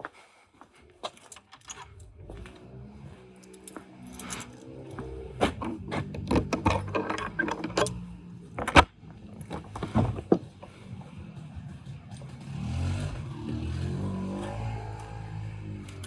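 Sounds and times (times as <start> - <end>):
metal tools clinking: 1.1 - 2.5, 3.3 - 8.8.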